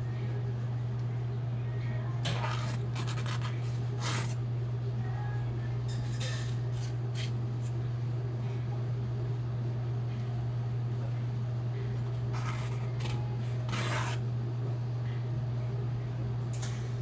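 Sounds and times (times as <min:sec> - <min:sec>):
knife scraping on sharpening stone: 0:13.7 - 0:14.2.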